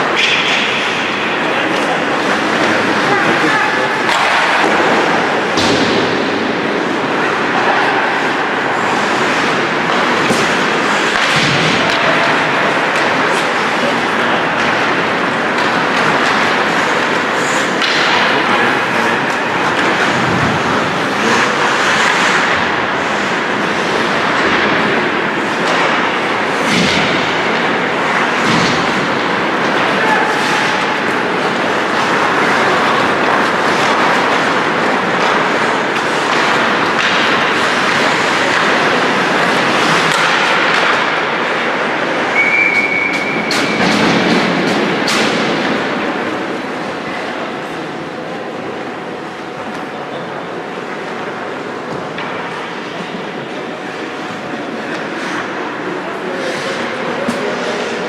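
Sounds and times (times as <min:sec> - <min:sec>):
hockey sticks knocking: 0:00.0 - 0:06.4, 0:07.3 - 0:46.8
skates scraping on ice: 0:06.9 - 0:46.8
sticks clacking against puck: 0:25.6 - 0:41.6
high whistle: 0:42.4 - 0:43.5.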